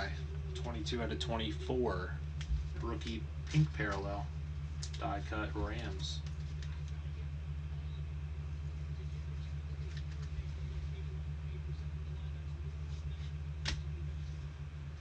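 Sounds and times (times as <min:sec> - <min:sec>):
steady low hum: 0:00.0 - 0:15.0
trading cards being handled: 0:05.8 - 0:07.1, 0:09.3 - 0:10.7.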